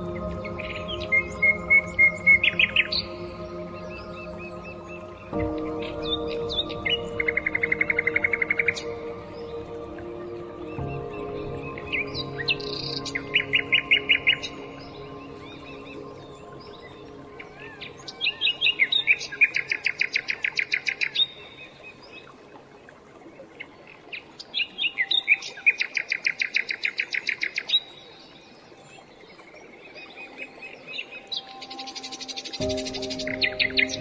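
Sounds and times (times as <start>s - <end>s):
songbird trilling song: 30.5s - 34.0s.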